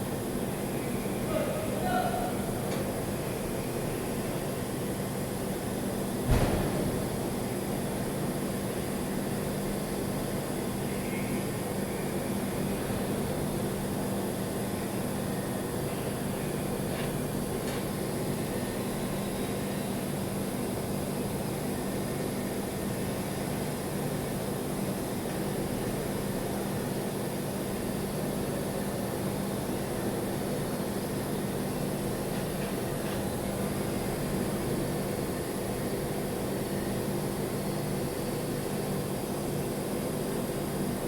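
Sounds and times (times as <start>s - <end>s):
sharp knock: 6.3s - 6.9s.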